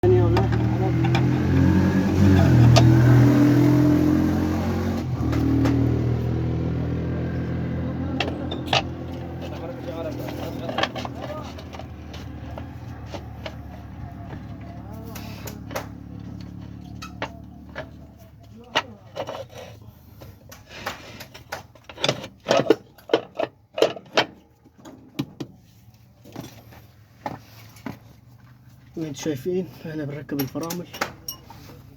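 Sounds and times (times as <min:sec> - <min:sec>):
tractor engine running: 0:05.1 - 0:18.7
metal parts knocking and clanking: 0:08.1 - 0:14.3, 0:21.2 - 0:25.4, 0:30.3 - 0:31.6.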